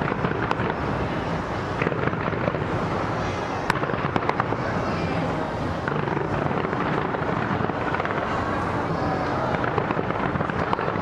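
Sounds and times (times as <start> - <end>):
fireworks bangs and crackles: 0.0 - 11.0
sharp firework cracks: 0.0 - 11.0.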